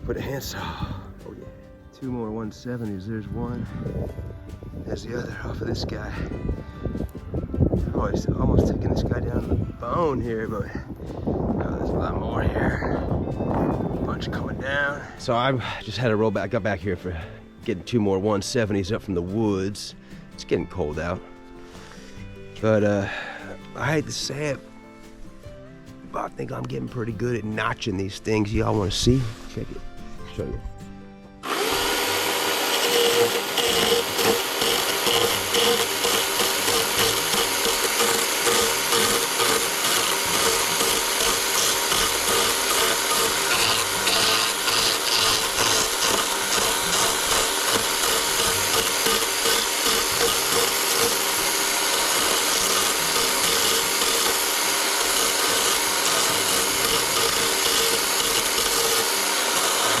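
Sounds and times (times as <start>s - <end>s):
chainsaw cutting log: 31.4s - 60.0s.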